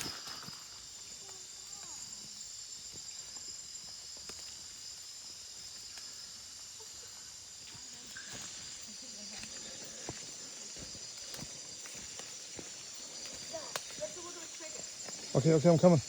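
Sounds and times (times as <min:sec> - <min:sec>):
faint ticks and rustles: 0:00.0 - 0:16.0
insects buzzing: 0:00.0 - 0:16.0.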